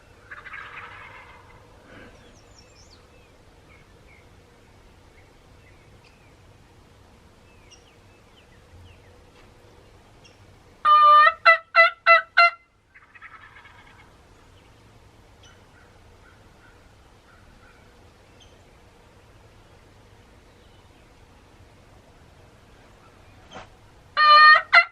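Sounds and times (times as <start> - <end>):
wild turkey calling: 0.0 - 3.1, 10.2 - 14.2, 15.4 - 18.6, 24.2 - 24.9
small birds chirping: 0.0 - 10.7, 12.9 - 24.0.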